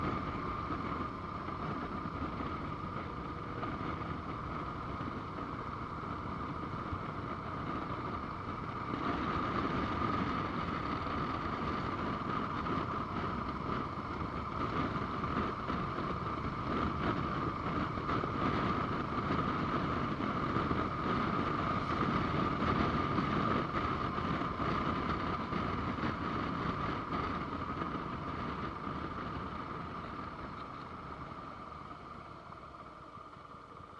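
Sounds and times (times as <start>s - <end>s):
wind noise on microphone: 0.0s - 32.7s
motorcycle engine rumble: 0.0s - 33.9s.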